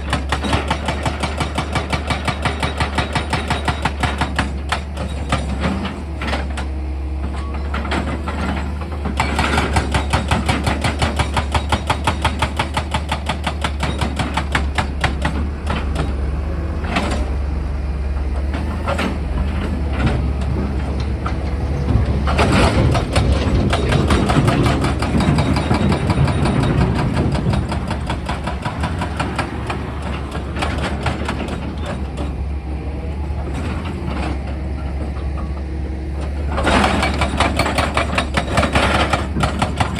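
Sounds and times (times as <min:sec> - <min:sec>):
diesel engine humming: 0:13.2 - 0:39.9.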